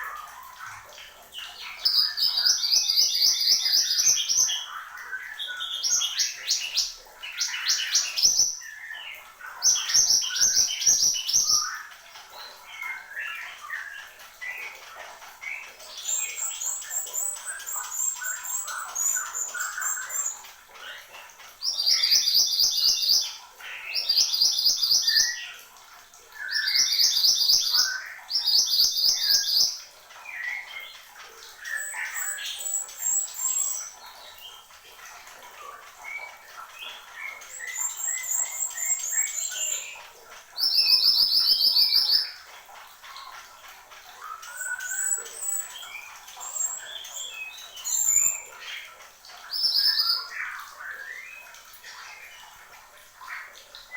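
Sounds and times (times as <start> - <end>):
bird chirps and warbles: 0.0 - 53.9.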